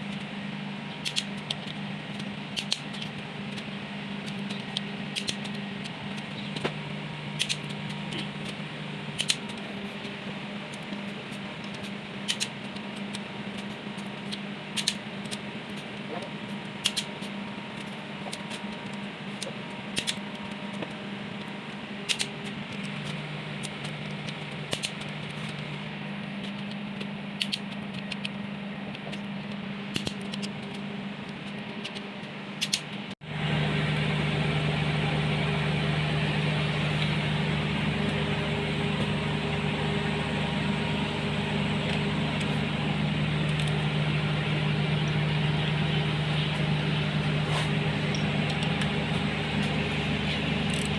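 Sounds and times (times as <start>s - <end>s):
machine humming: 0.0s - 50.9s
steady engine running: 0.0s - 50.9s
sharp clicks: 7.4s - 8.0s, 31.4s - 33.1s.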